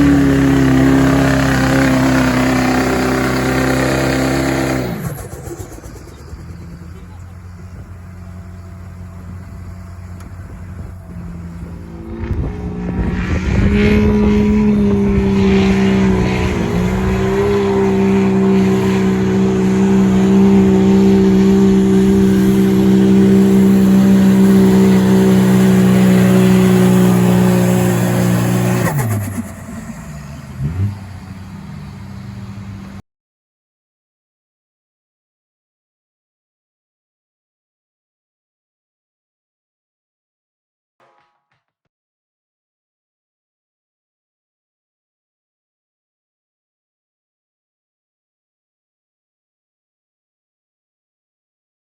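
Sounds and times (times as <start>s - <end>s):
diesel truck engine at full power: 0.0s - 33.0s.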